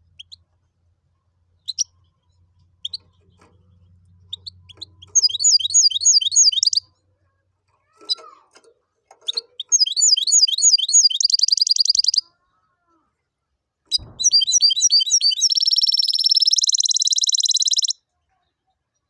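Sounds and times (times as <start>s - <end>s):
bird singing chirps and trills: 1.6s - 6.9s, 7.9s - 12.3s, 13.9s - 18.0s.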